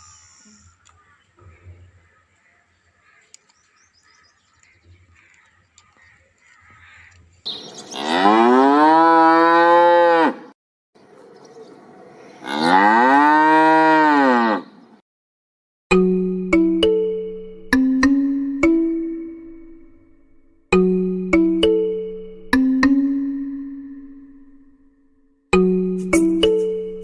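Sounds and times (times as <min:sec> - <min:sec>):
cattle mooing: 0:07.9 - 0:10.4, 0:12.4 - 0:14.7.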